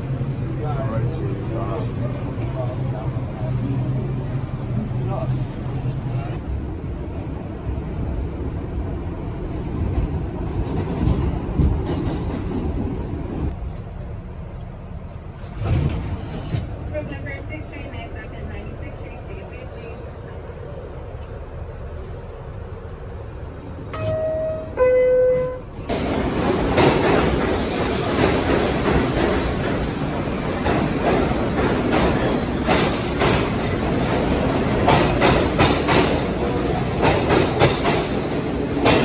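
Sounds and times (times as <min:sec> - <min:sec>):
subway train running loudly: 0:00.0 - 0:39.0
wheels clacking over rail joints: 0:28.2 - 0:39.0.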